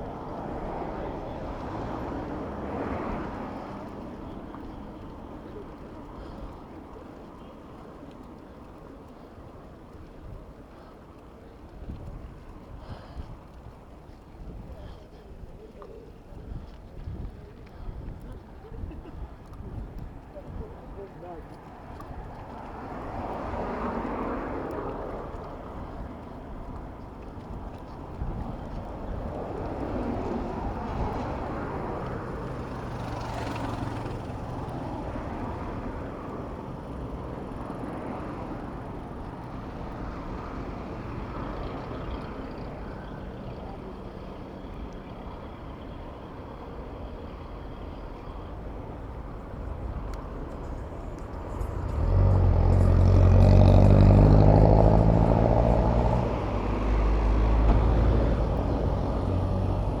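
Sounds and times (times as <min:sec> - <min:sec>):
rumble of traffic: 0:00.0 - 1:00.0
vehicle engine passing close: 0:28.4 - 1:00.0.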